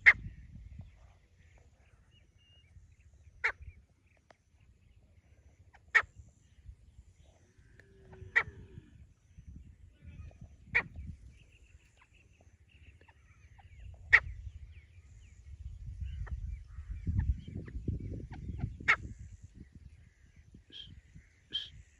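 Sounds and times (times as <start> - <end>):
bird calling sharply: 20.7 - 21.8.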